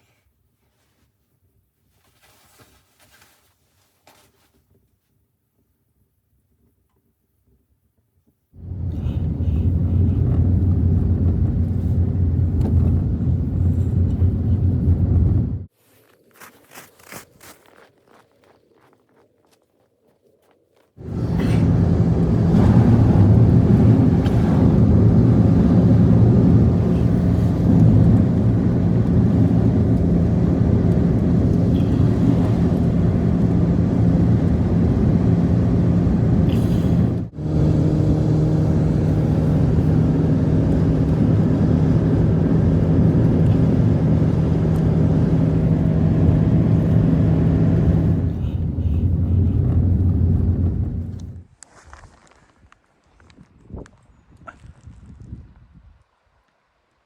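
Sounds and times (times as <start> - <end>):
engine running steadily: 8.6 - 15.7, 21.0 - 51.4.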